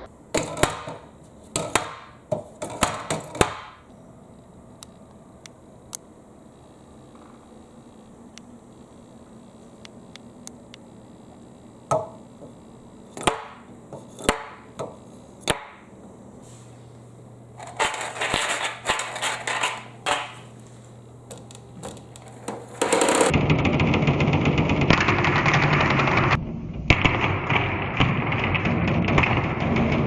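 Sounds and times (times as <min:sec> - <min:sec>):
marbles clattering down a marble run: 0:22.7 - 0:26.3.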